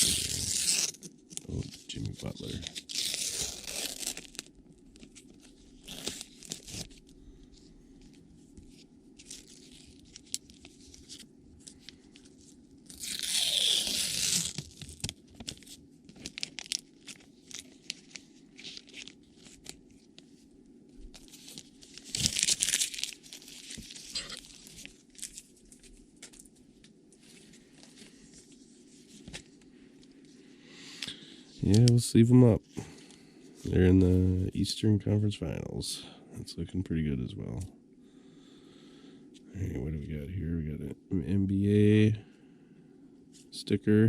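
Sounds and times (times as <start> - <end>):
sticker packets tearing open: 0.0 - 5.2, 5.8 - 7.0, 12.9 - 19.8, 21.2 - 25.4.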